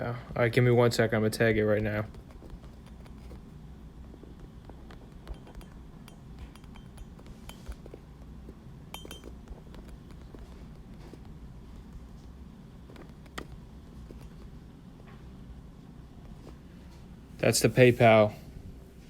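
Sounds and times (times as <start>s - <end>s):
low room hum: 0.0s - 19.0s
small ringing clinks: 5.3s - 7.9s, 8.9s - 9.4s.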